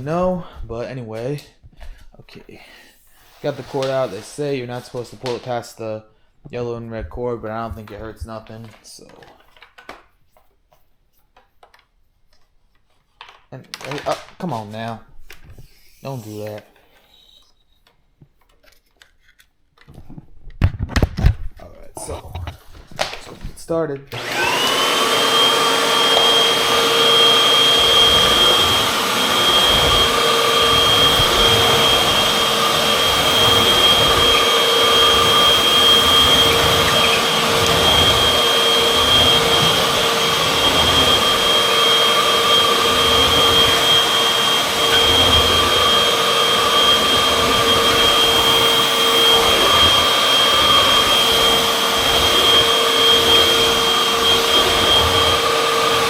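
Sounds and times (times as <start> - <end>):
vacuum cleaner motor whine: 2.9 - 5.5, 23.0 - 56.0.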